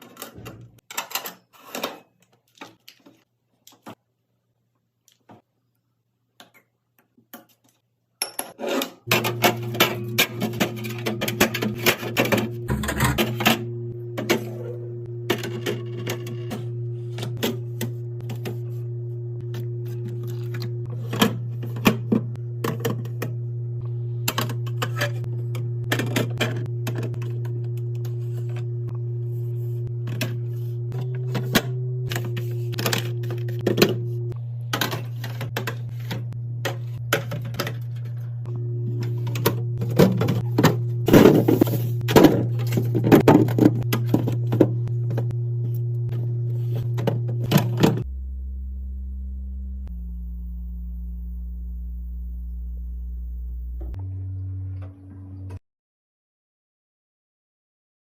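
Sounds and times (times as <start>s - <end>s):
food packages handled and set down: 39.0s - 45.3s.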